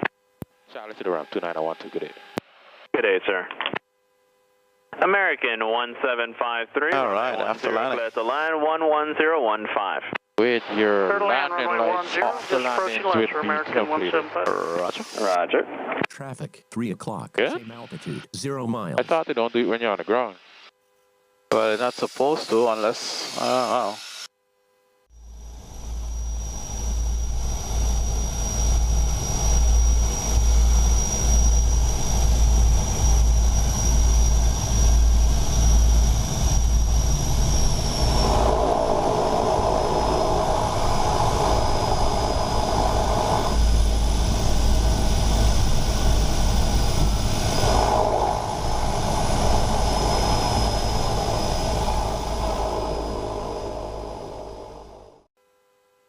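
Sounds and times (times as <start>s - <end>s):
turboprop engines whining and throbbing: 25.2s - 55.3s.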